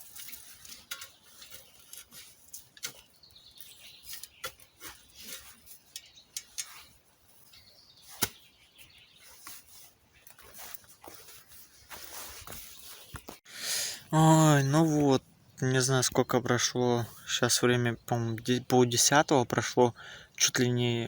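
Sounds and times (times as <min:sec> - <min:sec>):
dry twigs snapping and crackling: 0:00.0 - 0:04.6
soft rustling: 0:09.1 - 0:13.4.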